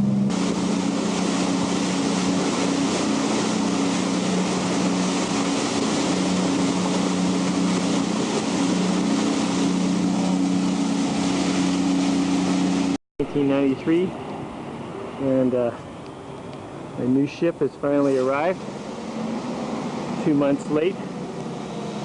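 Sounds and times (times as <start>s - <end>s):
boat engine humming: 0.0s - 22.0s
water rushing past: 0.0s - 22.0s
wind: 0.0s - 22.0s.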